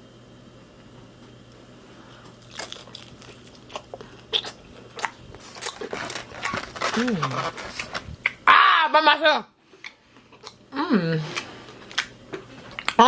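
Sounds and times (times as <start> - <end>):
crunchy chewing: 2.2 - 8.4.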